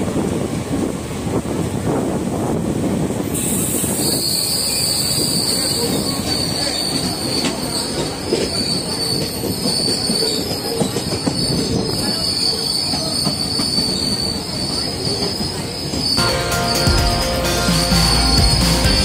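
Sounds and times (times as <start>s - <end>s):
wheels rumbling on track: 0.0s - 19.0s
high wheel squeal: 3.4s - 17.0s.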